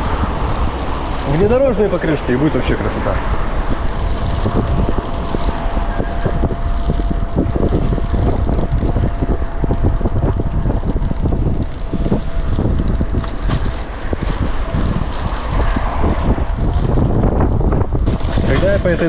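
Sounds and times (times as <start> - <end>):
thin steady whine: 0.0 - 15.5
wind buffeting microphone: 0.0 - 19.0
bike rattles and knocks: 3.2 - 19.0.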